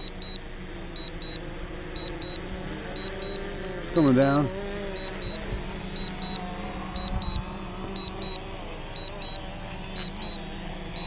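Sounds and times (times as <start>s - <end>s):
high double beep warning: 0.0s - 0.4s, 1.0s - 1.4s, 2.0s - 2.4s, 3.0s - 3.4s, 5.0s - 5.4s, 6.0s - 7.4s, 8.0s - 8.4s, 9.0s - 9.4s, 10.0s - 10.4s
steady low hum: 0.0s - 11.0s.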